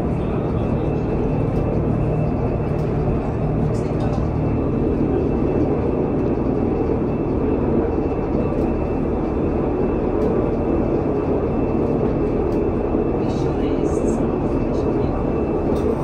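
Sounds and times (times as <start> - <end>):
railcar running drone: 0.0 - 16.0.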